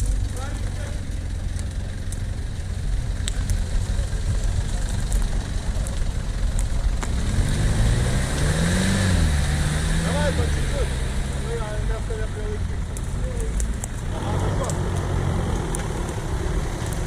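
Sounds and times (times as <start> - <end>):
suv engine revving: 0.0 - 17.0
faint clicks: 12.9 - 17.0.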